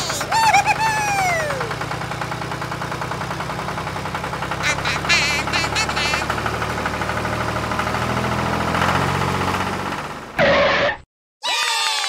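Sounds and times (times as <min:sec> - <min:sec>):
toy tractor driving on sand: 0:00.0 - 0:09.6
tractor engine knocking: 0:00.0 - 0:10.3.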